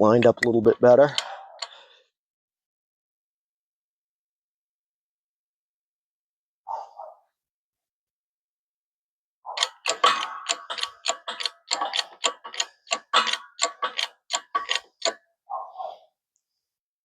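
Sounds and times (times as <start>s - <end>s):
hydraulic press metallic clacks: 0.1s - 1.8s, 9.6s - 15.2s.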